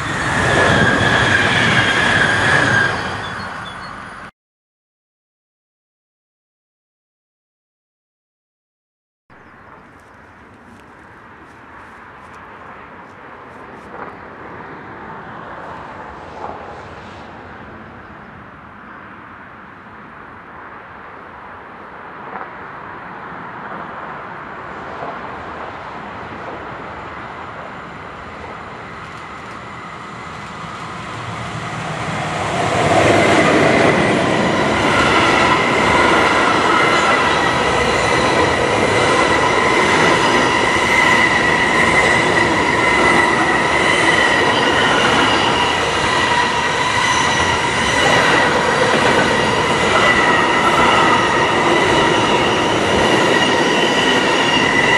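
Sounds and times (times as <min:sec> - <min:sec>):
train passing: 0:00.0 - 0:04.3, 0:09.4 - 0:54.9
wheels squealing on rails: 0:00.0 - 0:04.3, 0:26.8 - 0:54.9.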